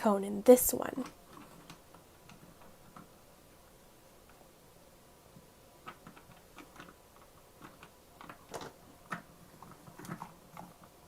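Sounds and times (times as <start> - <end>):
plastic pieces clicking: 5.8 - 10.8.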